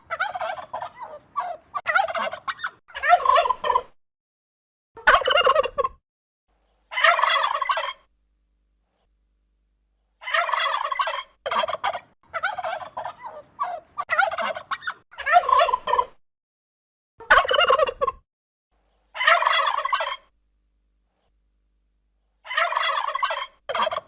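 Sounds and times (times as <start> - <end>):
turkey gobbling: 0.0 - 4.0, 5.0 - 6.0, 6.9 - 8.1, 10.2 - 16.2, 17.3 - 18.2, 19.2 - 20.3, 22.4 - 24.0.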